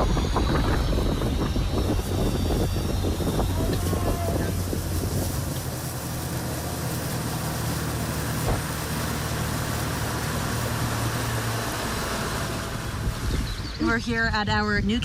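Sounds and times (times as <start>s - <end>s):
wind noise on microphone: 0.0s - 8.9s, 12.5s - 15.0s
boat motor running: 0.0s - 15.0s.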